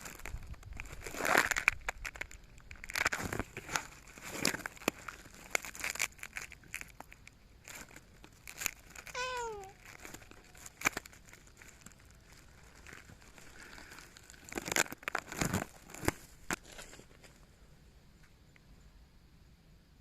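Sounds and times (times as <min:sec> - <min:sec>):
rustling and crinkling: 0:00.0 - 0:18.4
cat meowing: 0:09.1 - 0:09.8.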